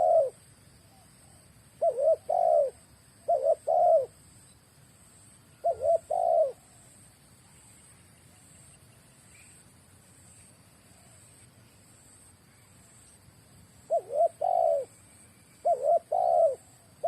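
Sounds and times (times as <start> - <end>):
dove cooing: 0.0 - 0.4, 1.2 - 4.2, 5.6 - 6.9, 13.9 - 15.0, 15.6 - 17.0.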